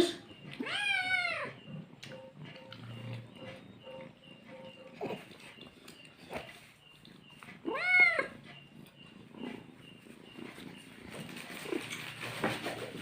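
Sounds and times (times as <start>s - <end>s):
cat meowing: 0.5s - 1.6s, 7.6s - 8.4s.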